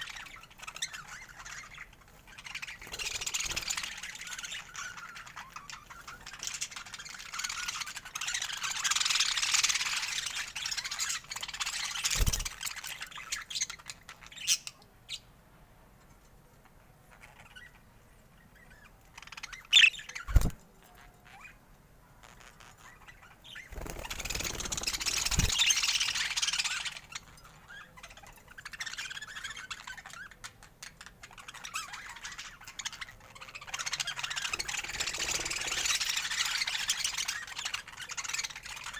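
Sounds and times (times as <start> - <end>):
budgerigars chattering: 18.7 - 20.6, 23.2 - 28.0.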